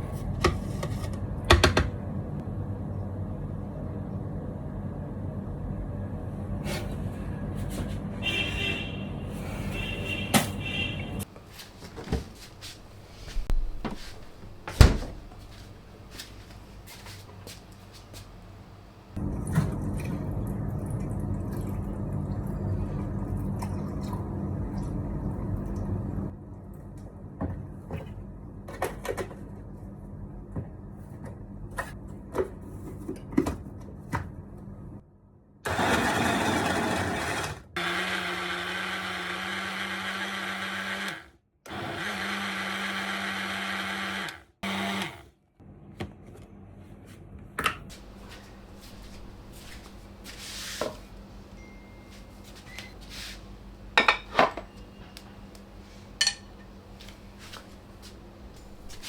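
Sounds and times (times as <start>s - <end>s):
electric blender running: 35.7s - 45.3s.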